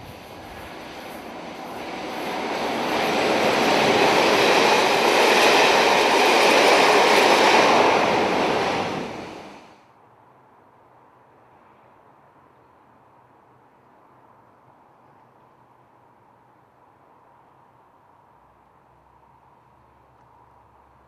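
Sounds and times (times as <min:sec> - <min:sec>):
diesel train passing: 0:00.0 - 0:09.8.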